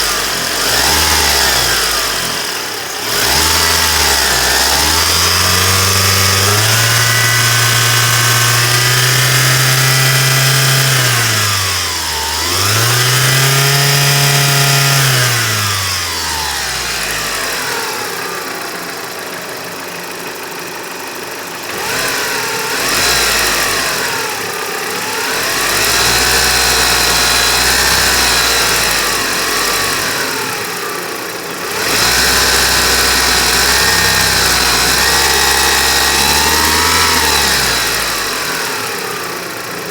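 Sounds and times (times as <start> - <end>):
engine revving: 0.0 - 39.9.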